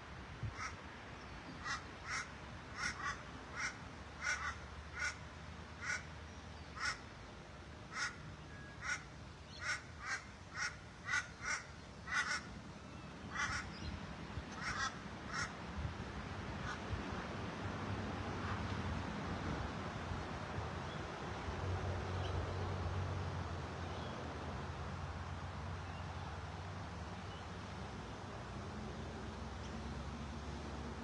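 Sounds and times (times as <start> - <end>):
bird calling: 13.3 - 15.5.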